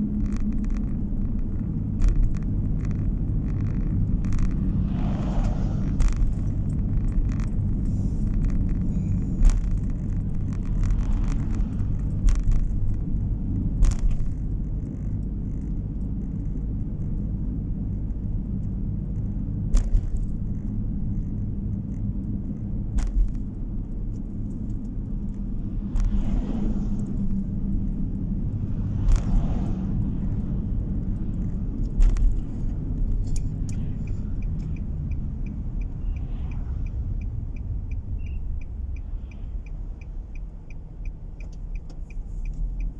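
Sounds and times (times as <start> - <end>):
car engine and tyre rumble: 0.0 - 42.9
car knocks and bumps: 0.2 - 7.7, 8.3 - 14.6, 22.9 - 23.7, 28.7 - 34.8.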